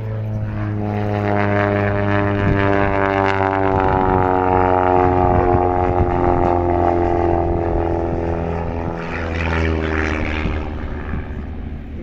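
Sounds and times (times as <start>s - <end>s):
propeller plane flying past: 0.0s - 12.0s.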